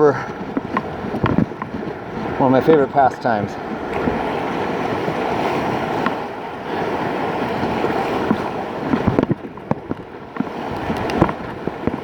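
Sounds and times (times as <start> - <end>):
river water rushing: 0.0 - 12.0
wind on microphone: 0.0 - 12.0.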